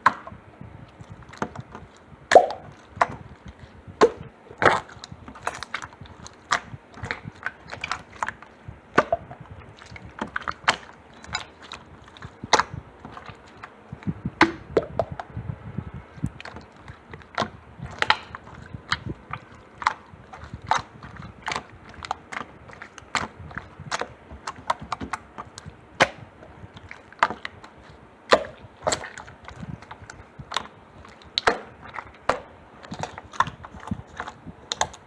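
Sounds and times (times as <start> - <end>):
slime clicking and popping: 2.3 - 3.3, 16.2 - 35.0.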